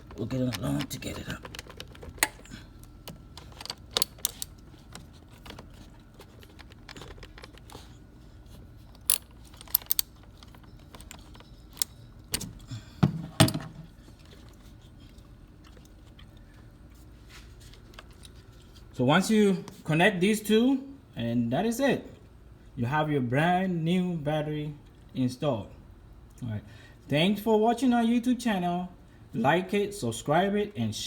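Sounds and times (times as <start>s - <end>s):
wrench clicking on battery terminal: 9.0s - 10.2s.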